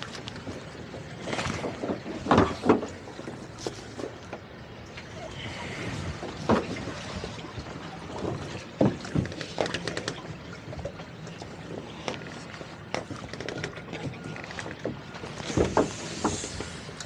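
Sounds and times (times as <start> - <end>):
water: 0.0 - 17.0.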